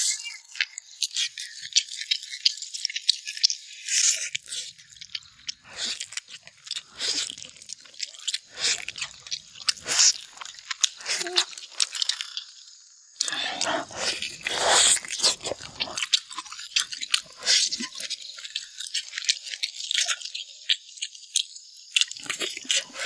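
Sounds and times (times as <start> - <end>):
person chewing meat off bone: 4.0 - 12.5, 13.2 - 20.4, 22.0 - 23.0.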